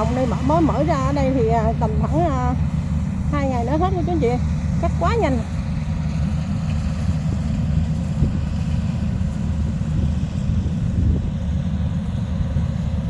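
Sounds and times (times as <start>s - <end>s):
combine harvester engine rumbling: 0.0s - 13.0s.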